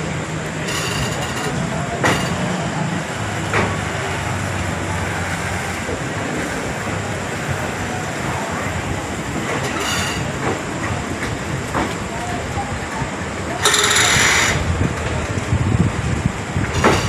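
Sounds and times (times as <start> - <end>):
train coaches rumbling: 0.0 - 17.0.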